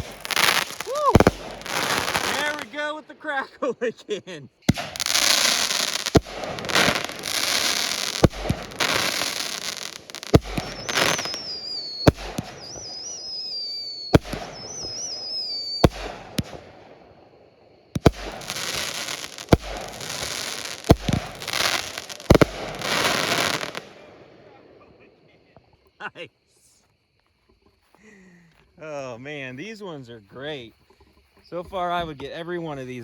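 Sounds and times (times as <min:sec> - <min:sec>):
firework crackling hiss: 0:00.0 - 0:03.0, 0:04.7 - 0:17.0, 0:17.9 - 0:24.1
firework whistles: 0:00.0 - 0:03.4, 0:04.7 - 0:17.1, 0:17.9 - 0:24.1
firework bangs: 0:00.0 - 0:25.2.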